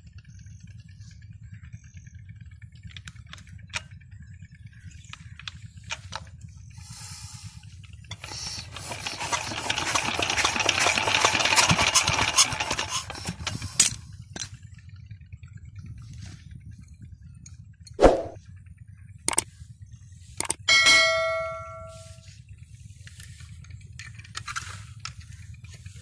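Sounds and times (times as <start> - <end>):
diesel engine cranking: 5.0 - 14.5
loud metallic clang: 20.7 - 22.1.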